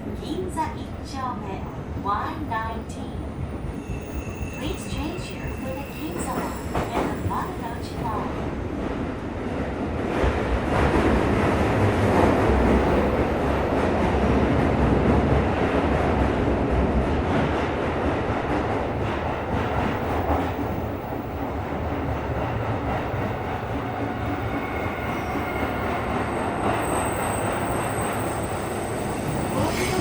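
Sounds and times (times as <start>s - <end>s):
subway train wheels rumbling: 0.0s - 30.0s
high wheel squeal: 3.7s - 7.8s.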